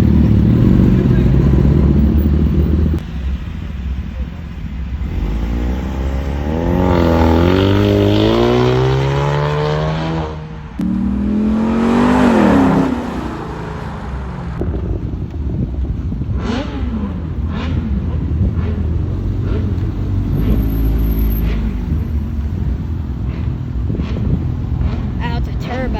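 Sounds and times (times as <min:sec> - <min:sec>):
car engine revving: 0:00.0 - 0:15.2, 0:16.0 - 0:25.9
low rumble of engines: 0:00.0 - 0:25.9.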